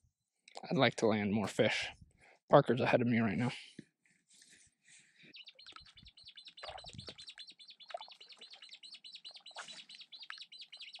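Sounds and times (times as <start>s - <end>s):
small songbird chirping: 5.2s - 11.0s.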